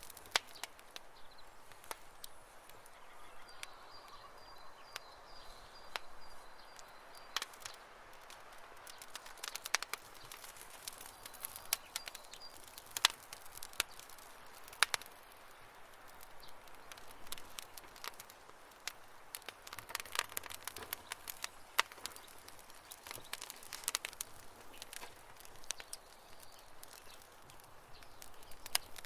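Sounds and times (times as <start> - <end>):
campfire crackling and popping: 0.0 - 29.0
soft steady hiss: 0.0 - 29.0.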